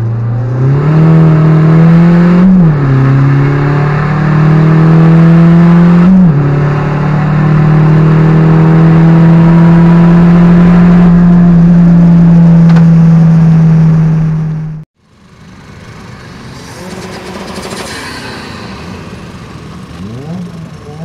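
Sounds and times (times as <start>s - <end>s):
diesel engine droning: 0.0s - 21.0s
car accelerating with rushing hiss: 15.2s - 21.0s.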